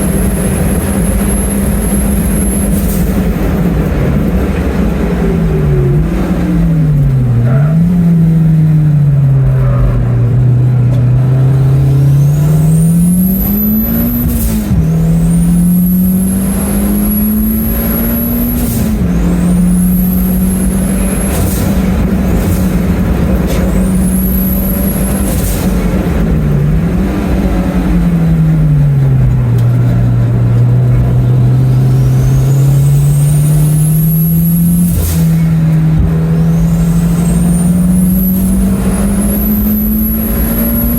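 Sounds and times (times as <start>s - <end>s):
turbo whistle: 0.0s - 3.2s, 12.1s - 22.4s, 23.6s - 25.7s, 31.9s - 35.5s, 36.4s - 40.9s
car engine at full throttle: 0.0s - 40.9s.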